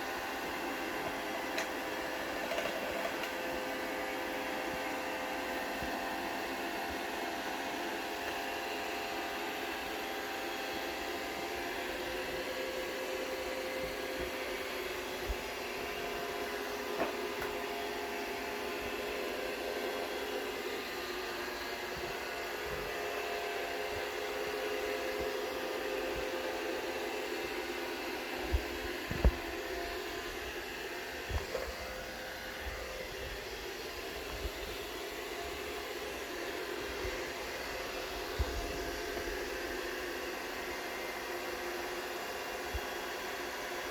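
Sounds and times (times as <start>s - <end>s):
robot vacuum whirring: 0.0s - 42.8s
robot vacuum motor whir: 0.1s - 12.4s.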